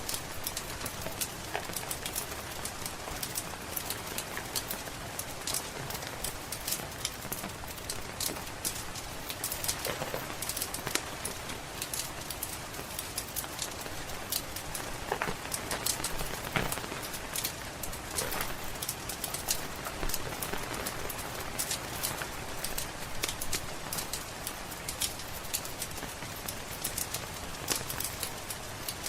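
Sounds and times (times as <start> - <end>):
rain hissing: 0.0 - 29.0
wood fire crackling and popping: 0.0 - 29.0.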